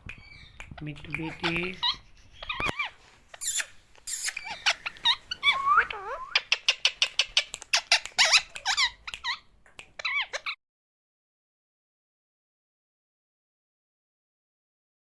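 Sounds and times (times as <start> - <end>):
high-pitched bird chirping: 1.4 - 10.6
lovebirds screeching: 1.4 - 10.6.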